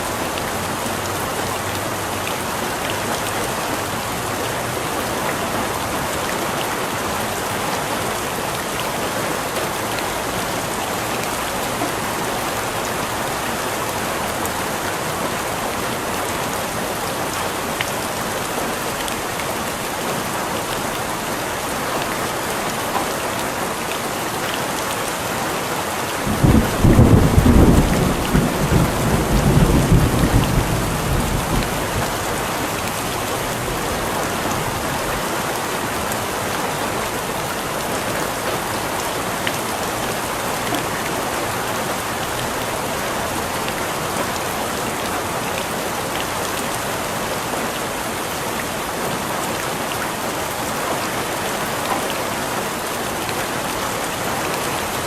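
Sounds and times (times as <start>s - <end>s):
heavy rain falling: 0.0s - 55.0s
thunder rumbling: 26.2s - 32.6s.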